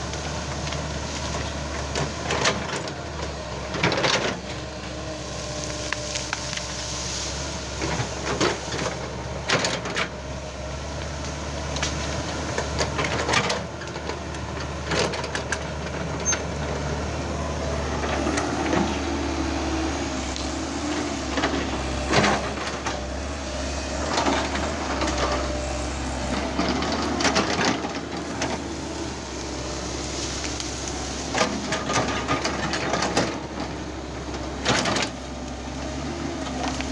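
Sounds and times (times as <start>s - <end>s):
excavator diesel engine running: 0.0s - 36.9s
wood cracking and crashing: 18.2s - 36.9s.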